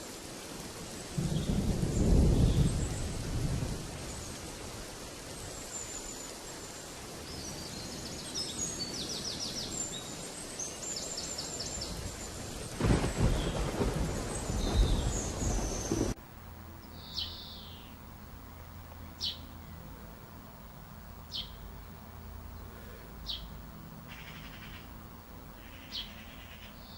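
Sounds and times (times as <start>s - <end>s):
steady rain: 0.0s - 16.8s
thunder rumbling: 1.2s - 4.9s, 11.8s - 16.2s
birds chirping with high trills: 5.5s - 16.1s, 16.8s - 20.0s, 21.2s - 25.0s, 25.6s - 26.9s.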